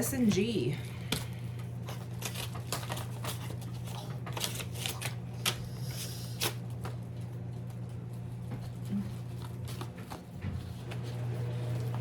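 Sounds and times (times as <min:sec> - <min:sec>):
low steady hum: 0:00.0 - 0:12.0
envelope paper crackling: 0:01.4 - 0:05.6.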